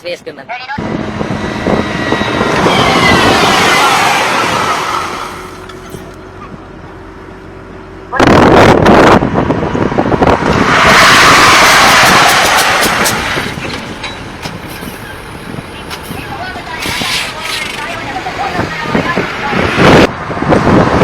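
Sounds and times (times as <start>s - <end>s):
heavy truck passing: 0.8s - 8.1s, 9.3s - 21.0s
loud clattering noise: 10.6s - 19.9s.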